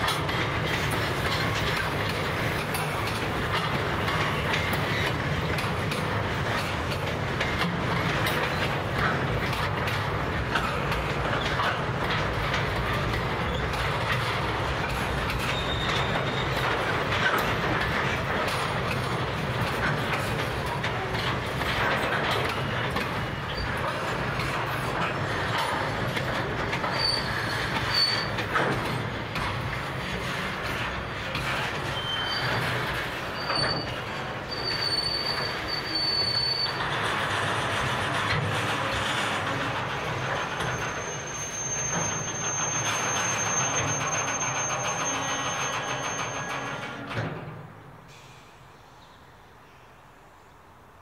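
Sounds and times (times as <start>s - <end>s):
train wheels rumbling and clicking: 0.0s - 48.1s
high wheel squeals: 15.3s - 16.8s, 26.8s - 28.7s, 30.0s - 37.9s, 38.7s - 47.1s.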